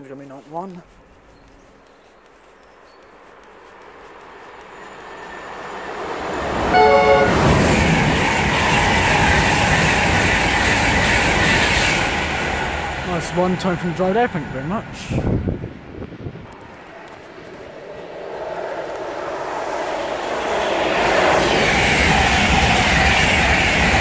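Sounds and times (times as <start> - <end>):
electric train passing at speed: 1.0 - 24.0
train horn blast: 6.6 - 8.0.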